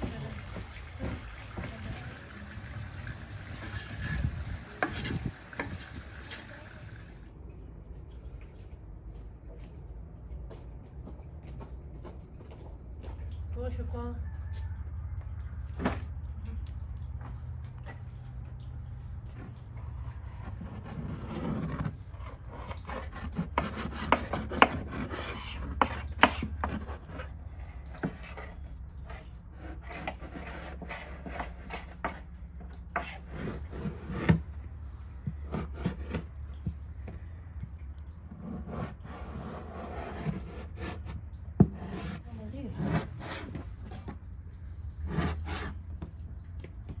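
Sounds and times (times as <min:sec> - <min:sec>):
rubbing and scraping on wood: 0:00.0 - 0:07.2, 0:19.3 - 0:37.3, 0:38.1 - 0:46.3.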